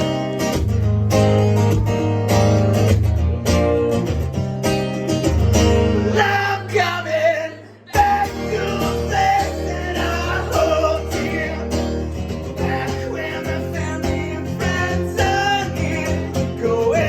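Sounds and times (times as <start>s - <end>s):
strummed guitar: 0.0s - 17.0s
person singing: 6.0s - 17.0s.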